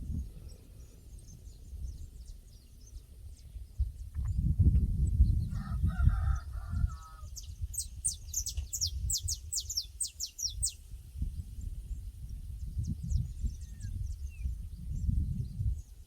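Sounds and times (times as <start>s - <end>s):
small bird chirping: 7.2s - 10.8s.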